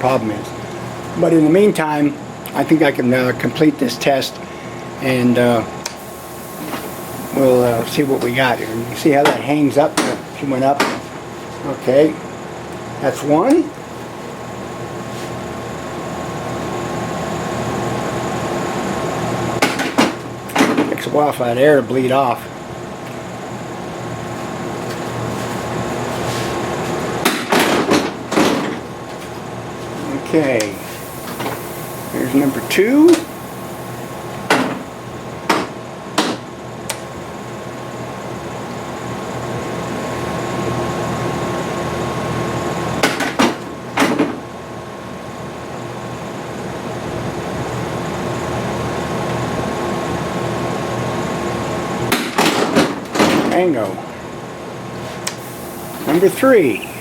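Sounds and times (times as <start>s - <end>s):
landing gear mechanical hum: 0.0s - 43.0s, 51.0s - 57.0s
compressed air hissing: 5.9s - 10.6s, 30.6s - 35.5s, 55.0s - 57.0s.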